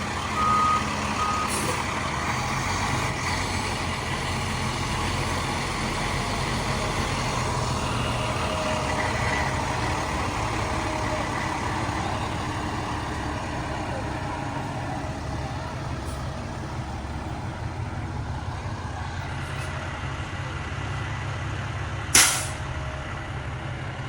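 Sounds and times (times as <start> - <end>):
reversing beeper: 0.0 - 1.8
truck diesel engine running: 0.0 - 24.0
short hiss: 22.2 - 22.6.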